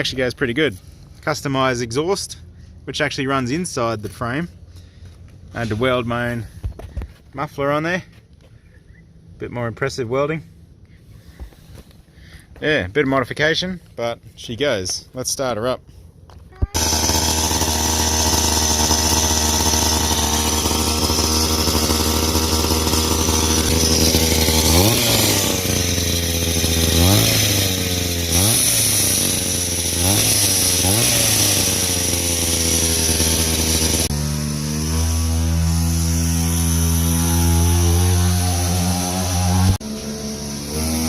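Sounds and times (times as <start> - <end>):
dirt bike engine idling and revving: 16.6 - 41.0.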